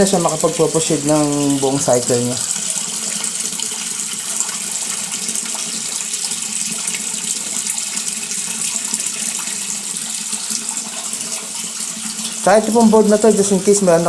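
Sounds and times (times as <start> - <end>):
water pouring into washing machine: 0.0 - 14.0.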